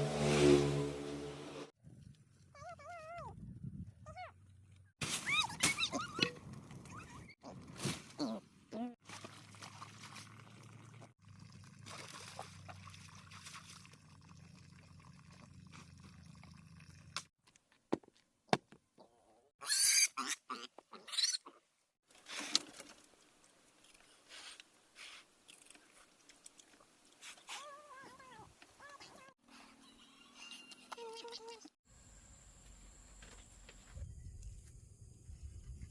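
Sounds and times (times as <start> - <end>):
pig squealing: 19.6 - 21.6.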